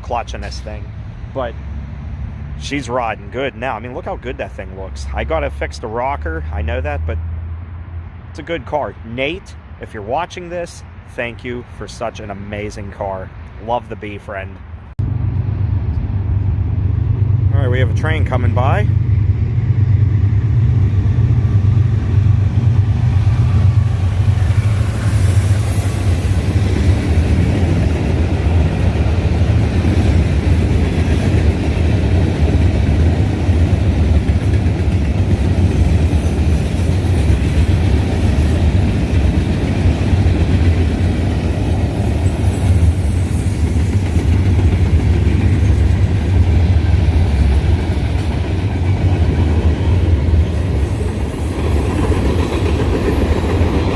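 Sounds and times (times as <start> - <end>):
freight train wheels rumbling: 15.0 - 53.9.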